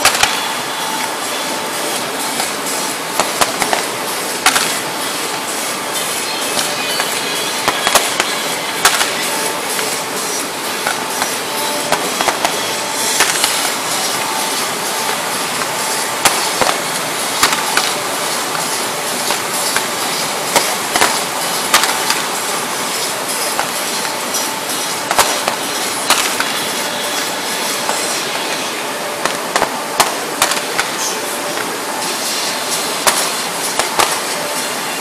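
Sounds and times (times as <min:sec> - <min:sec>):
fireworks shells cracking: 0:00.0 - 0:00.4, 0:03.2 - 0:05.4, 0:06.5 - 0:10.1, 0:10.8 - 0:27.2, 0:33.0 - 0:34.3
fireworks crackling hiss: 0:00.0 - 0:35.0.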